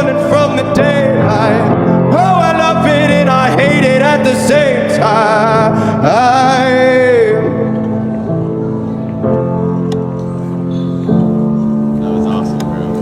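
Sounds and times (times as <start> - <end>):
man singing a long note: 0.0 - 7.8
keyboard chords: 0.0 - 13.0.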